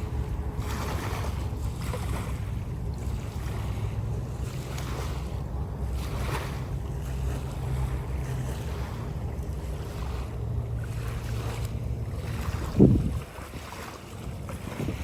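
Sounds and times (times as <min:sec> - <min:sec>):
water wash: 0:00.0 - 0:15.0
watercraft motor humming: 0:00.0 - 0:15.0
wind noise: 0:12.2 - 0:15.0.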